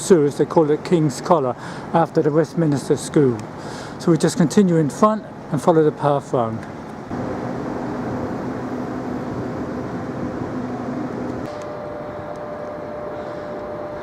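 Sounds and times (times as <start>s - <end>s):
high steady whine: 5.1s - 14.0s
motor humming: 7.1s - 12.4s.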